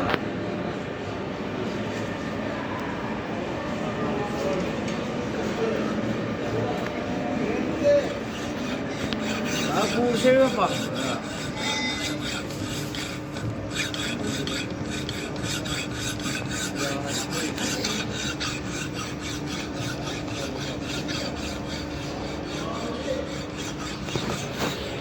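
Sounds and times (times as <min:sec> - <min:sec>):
hand file rasping on metal: 0:08.0 - 0:25.0.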